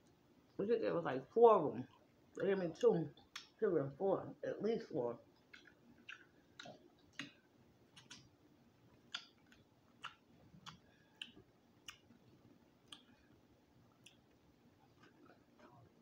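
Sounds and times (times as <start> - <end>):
chewing mouth clicks and smacks: 5.4 - 8.3, 8.9 - 12.2, 12.8 - 13.4, 15.0 - 15.8.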